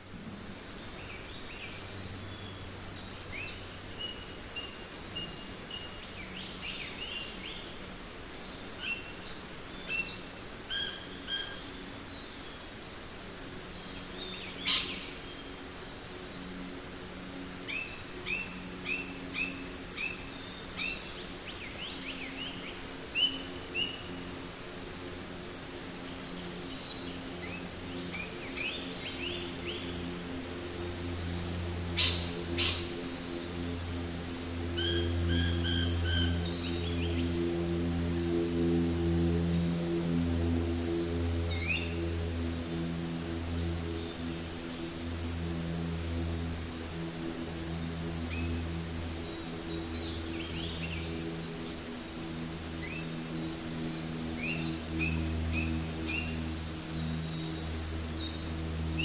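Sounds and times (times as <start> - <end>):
steady background hiss: 0.0 - 59.0
birds calling and chirping: 13.5 - 25.2, 25.9 - 59.0.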